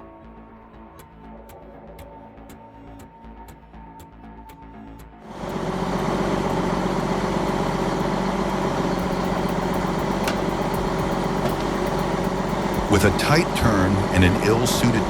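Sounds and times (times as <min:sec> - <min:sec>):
truck engine running: 0:05.2 - 0:15.0.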